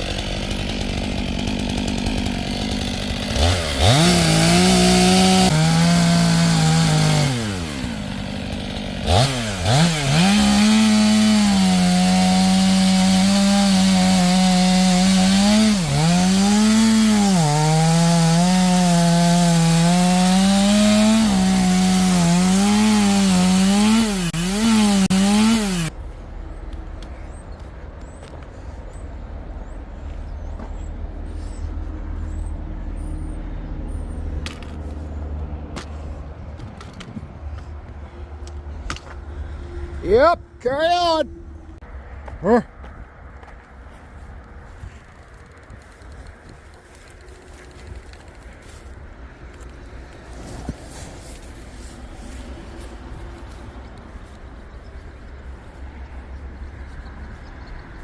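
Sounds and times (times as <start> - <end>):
chainsaw cutting log: 0.0 - 25.9, 45.0 - 54.4.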